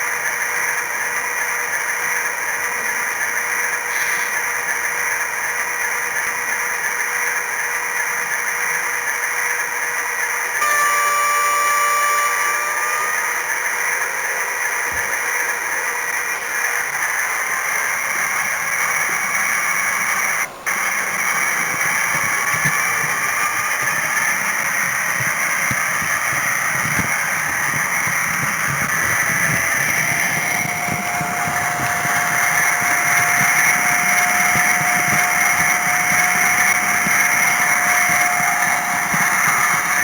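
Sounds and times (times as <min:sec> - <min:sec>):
model train motor whirring: 0:00.0 - 0:40.0
steady higher tone: 0:10.6 - 0:14.6.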